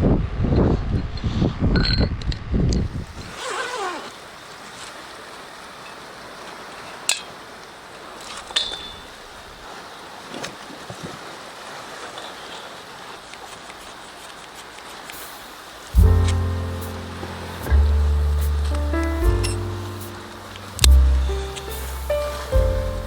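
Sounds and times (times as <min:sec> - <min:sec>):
sea surf washing: 0:03.1 - 0:23.0
loud low thumps: 0:16.0 - 0:23.0.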